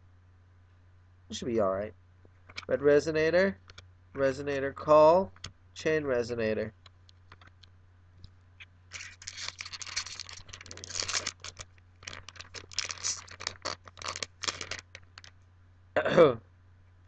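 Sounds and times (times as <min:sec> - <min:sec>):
cards and foil packs rustling: 0:08.9 - 0:15.4.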